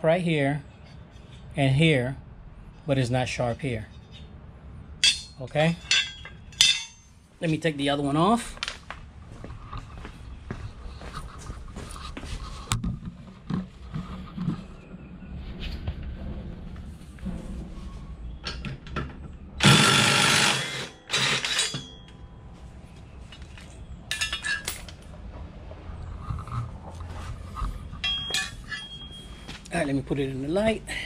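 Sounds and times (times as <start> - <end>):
metal tools clinking: 5.0 - 7.1, 19.7 - 22.3, 23.3 - 25.1, 27.9 - 29.8
power tool running: 19.6 - 21.8.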